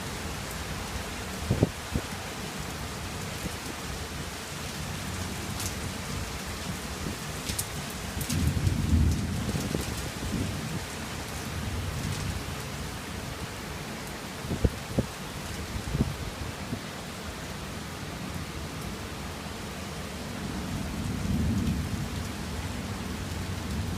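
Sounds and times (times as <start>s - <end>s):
steady rain falling: 0.0s - 23.9s
low rumble of thunder: 8.1s - 12.6s, 20.4s - 23.9s.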